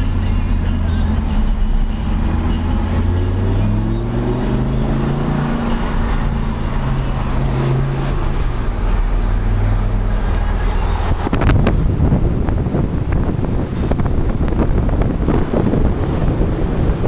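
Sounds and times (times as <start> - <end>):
car engine running: 0.0 - 17.0
wind buffeting microphone: 9.4 - 17.0.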